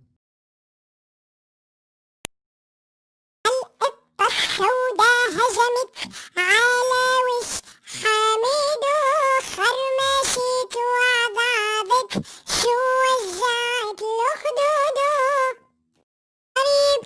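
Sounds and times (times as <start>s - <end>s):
child-like voice singing: 3.5s - 15.6s, 16.6s - 17.0s.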